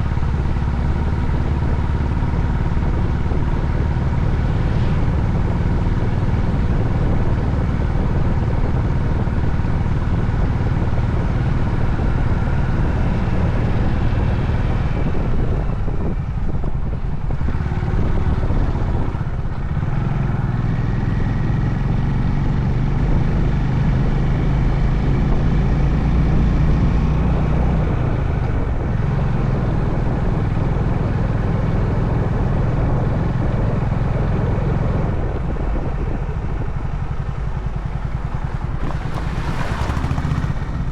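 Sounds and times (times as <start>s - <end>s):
road and wind noise: 0.0s - 40.9s
motorcycle engine running: 36.5s - 40.9s.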